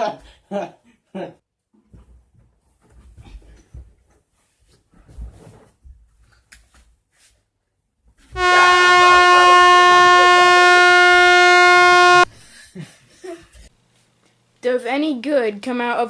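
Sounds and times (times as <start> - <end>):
loud air horn blast: 8.4 - 12.3.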